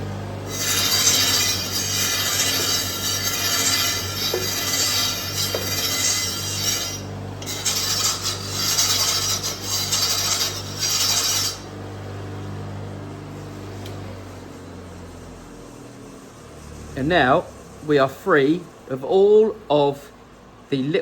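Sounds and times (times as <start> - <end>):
motor hum: 0.0 - 18.0
cleaning wheel scraping saw blade: 0.4 - 11.7.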